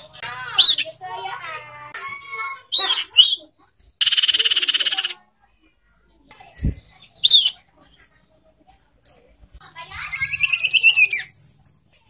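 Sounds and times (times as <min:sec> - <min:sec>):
sharp bird chirps: 0:02.7 - 0:05.2.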